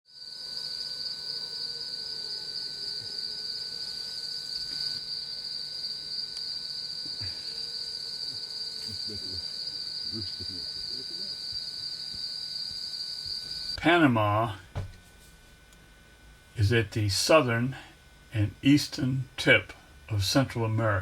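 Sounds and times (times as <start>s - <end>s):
high-pitched insect drone: 0.1s - 13.8s
low steady insect tone: 0.1s - 21.0s.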